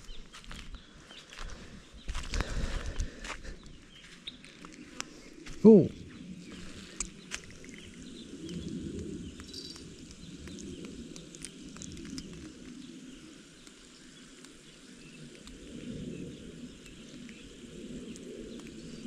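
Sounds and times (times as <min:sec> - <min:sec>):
small clicks: 0:08.5 - 0:12.8.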